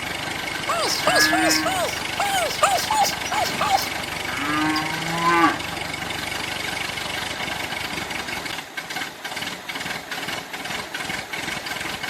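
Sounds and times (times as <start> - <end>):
steady mechanical hum: 0.7 - 7.8
cow mooing: 0.8 - 5.7.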